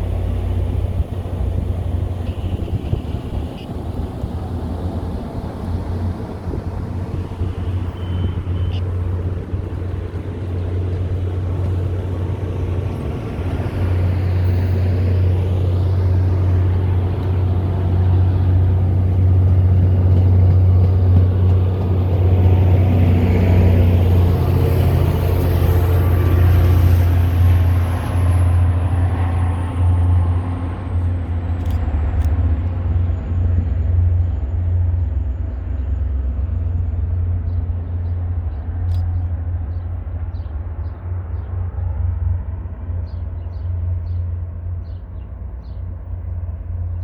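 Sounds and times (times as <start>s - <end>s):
diesel locomotive droning: 0.0s - 47.0s.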